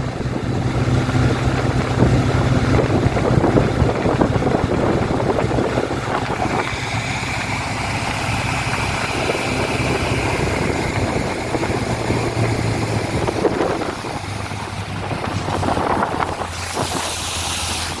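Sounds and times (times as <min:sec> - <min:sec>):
two-stroke outboard motor running: 0:00.0 - 0:18.0
wind rumbling on microphone: 0:00.0 - 0:18.0.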